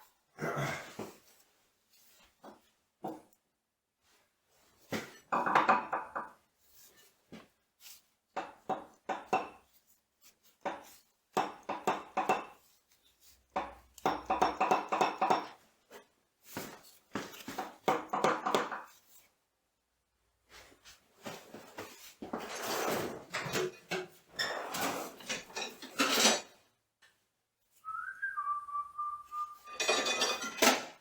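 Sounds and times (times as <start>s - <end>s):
steel parts knocking and ringing: 29.7s - 30.8s.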